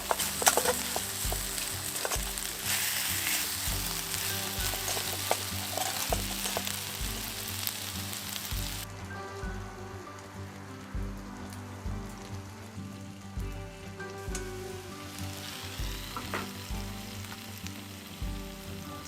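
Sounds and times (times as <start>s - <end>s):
utensil clicking against pan: 0.0s - 6.8s
food sizzling in a pan: 0.0s - 8.9s, 14.0s - 19.0s.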